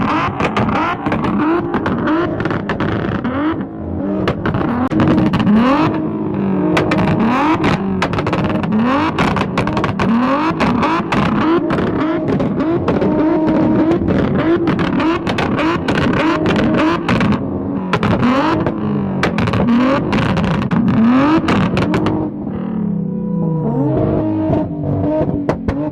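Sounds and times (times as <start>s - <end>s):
sharp cracks and pops: 0.0s - 3.4s, 6.8s - 22.2s
car engines revving hard: 0.0s - 25.9s.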